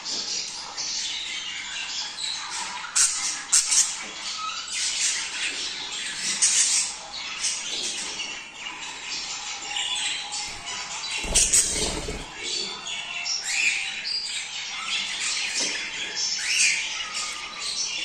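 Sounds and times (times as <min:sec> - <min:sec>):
budgerigars chattering: 0:10.2 - 0:12.7.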